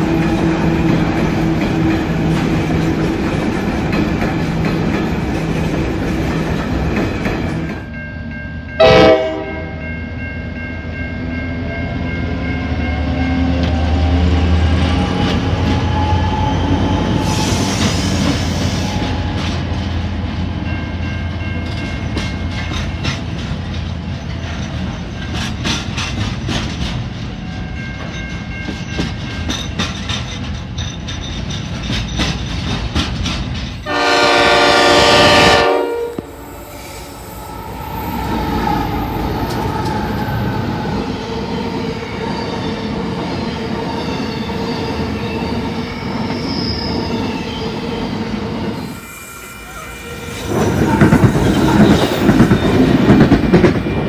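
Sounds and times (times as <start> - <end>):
diesel locomotive: 0.0 - 54.0
freight train rumble: 0.0 - 54.0
train horn blast: 8.8 - 9.9, 33.8 - 37.0
train wheels clacking over rail joints: 21.6 - 34.7, 50.5 - 54.0.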